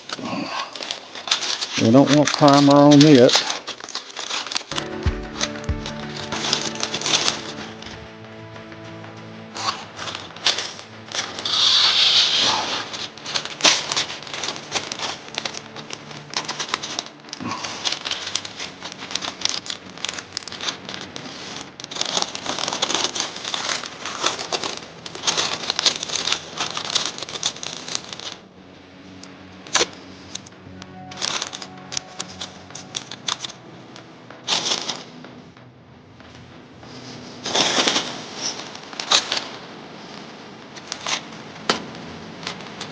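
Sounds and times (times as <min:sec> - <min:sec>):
masking tape tearing: 0:00.0 - 0:28.4
paper crinkling: 0:00.0 - 0:35.3, 0:36.8 - 0:42.9.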